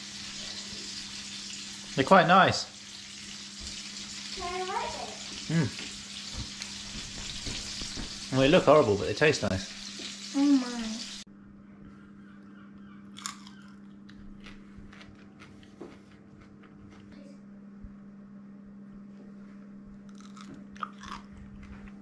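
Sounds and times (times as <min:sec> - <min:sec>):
chewing crispy fried fish: 0:13.1 - 0:17.2, 0:20.1 - 0:22.0.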